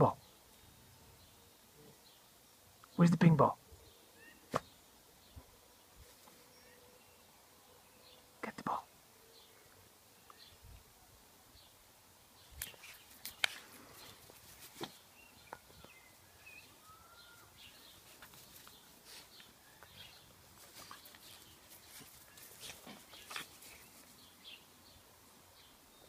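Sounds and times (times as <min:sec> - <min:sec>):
faint bird chirps: 0:15.1 - 0:24.7
soft ticks and rustles: 0:18.0 - 0:24.3.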